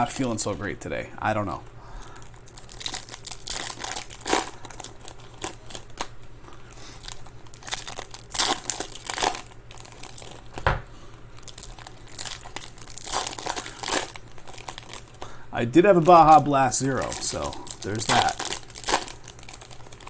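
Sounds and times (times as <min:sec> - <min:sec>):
foil wrappers tearing and crinkling: 0:02.0 - 0:10.6, 0:11.3 - 0:20.0
knock on table: 0:10.6 - 0:10.9.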